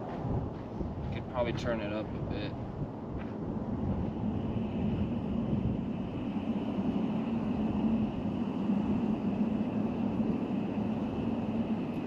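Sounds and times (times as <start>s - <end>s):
wind on microphone: 0.0s - 12.0s
camp stove burner roaring: 2.8s - 12.0s.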